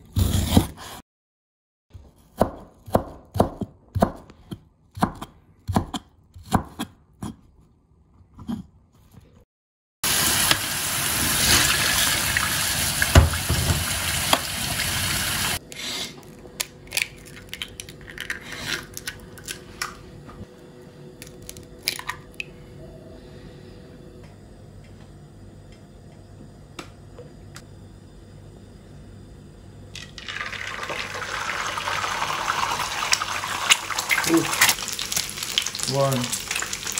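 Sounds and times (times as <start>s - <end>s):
eggs cracked into ceramic bowl: 16.6s - 19.6s, 21.2s - 22.5s.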